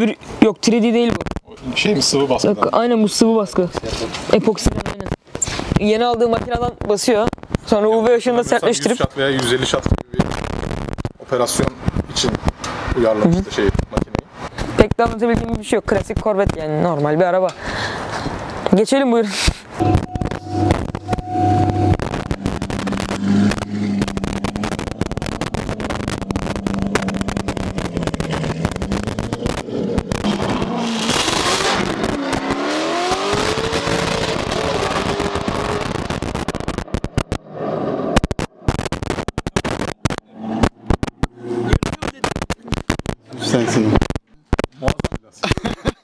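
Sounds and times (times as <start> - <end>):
car engine running and revving: 19.8 - 44.1.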